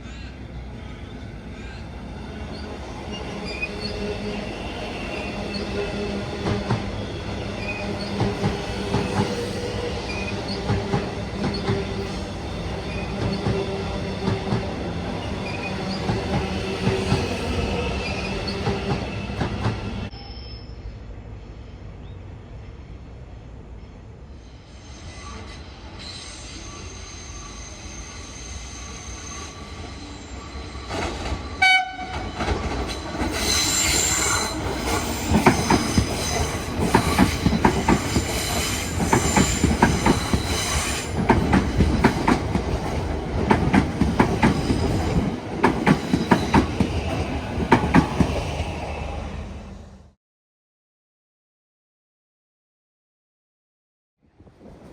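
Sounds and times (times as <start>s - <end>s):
electric train whine: 0.1s - 50.2s
train horn blast: 31.6s - 32.3s
wheels clacking over rail joints: 32.1s - 48.4s.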